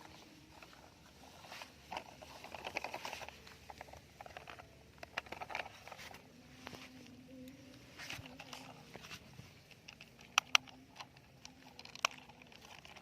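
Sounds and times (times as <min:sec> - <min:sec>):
plastic toys tapping and clicking: 0:01.9 - 0:06.8, 0:08.0 - 0:13.0.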